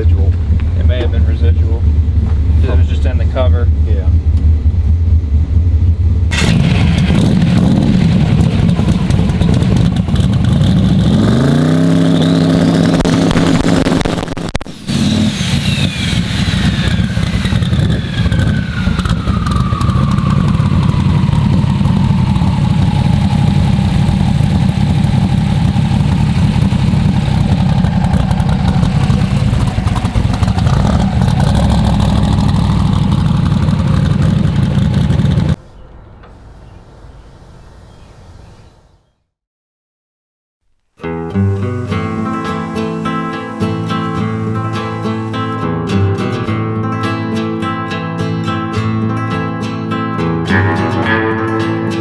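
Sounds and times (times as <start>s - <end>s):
car engine revving: 0.0s - 35.6s, 41.3s - 45.7s
high turbo whine: 0.0s - 37.2s, 41.2s - 46.4s.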